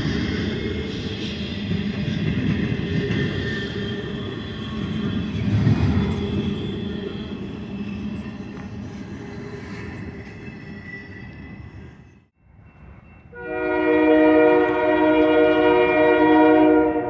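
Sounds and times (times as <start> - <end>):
high wheel squeal: 0.0 - 13.6
train wheels rumbling on rail: 0.0 - 17.0.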